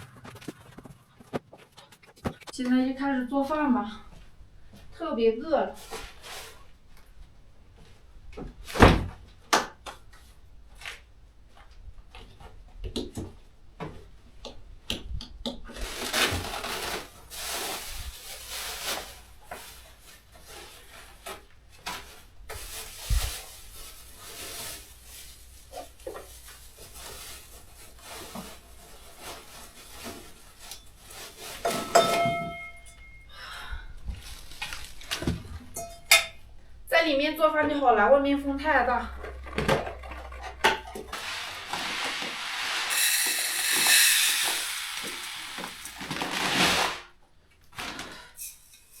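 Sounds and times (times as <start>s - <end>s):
rustling: 39.1s - 47.1s.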